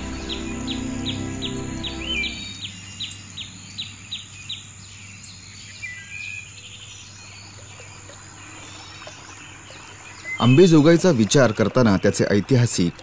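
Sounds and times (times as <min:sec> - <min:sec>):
low hum and hiss: 0:00.0 - 0:04.3
birds chirping: 0:00.0 - 0:13.0.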